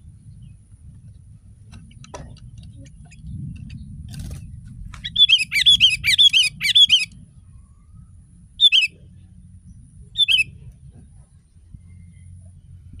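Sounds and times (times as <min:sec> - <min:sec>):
faint low hum: 0:00.0 - 0:13.0
bulbul chattering calls: 0:05.0 - 0:07.1, 0:08.6 - 0:09.0, 0:10.2 - 0:10.5.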